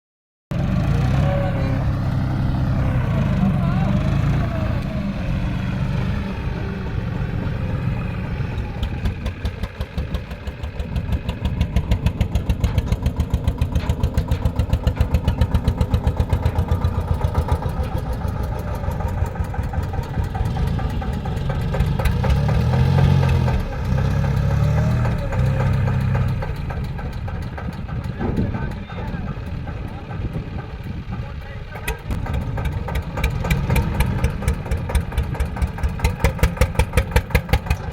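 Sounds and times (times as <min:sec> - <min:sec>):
tractor diesel engine running: 0:00.5 - 0:37.9.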